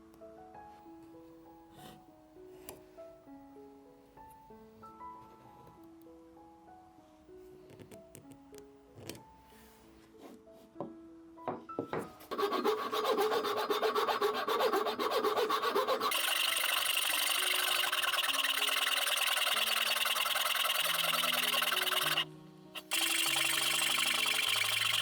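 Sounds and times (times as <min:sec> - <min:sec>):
soft background music: 0:00.0 - 0:25.0
hand tool rasping wood: 0:12.3 - 0:22.2, 0:22.8 - 0:25.0.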